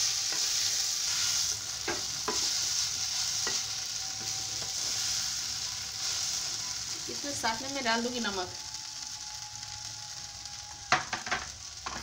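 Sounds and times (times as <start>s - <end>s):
food sizzling in oil: 0.0s - 12.0s
spatula scraping and tapping pan: 0.2s - 0.6s, 1.8s - 5.0s.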